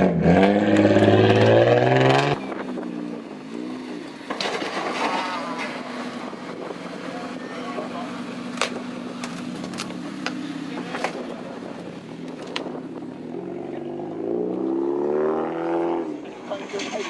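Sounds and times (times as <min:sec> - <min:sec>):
car engine revving away: 0:00.0 - 0:02.6, 0:13.3 - 0:16.4
car engine running: 0:00.7 - 0:14.7.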